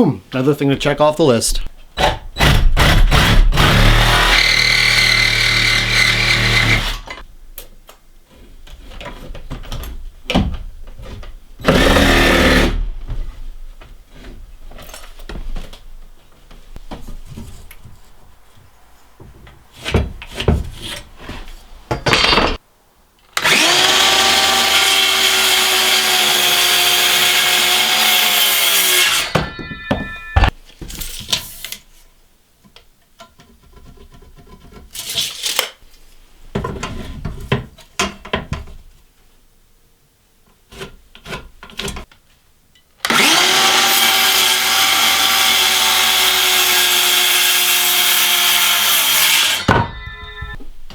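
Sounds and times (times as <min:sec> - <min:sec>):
power saw cutting wood: 0:02.5 - 0:07.2, 0:11.6 - 0:12.8, 0:23.4 - 0:29.6, 0:43.0 - 0:50.6
boards and tools clattering: 0:08.6 - 0:22.6, 0:25.7 - 0:31.7.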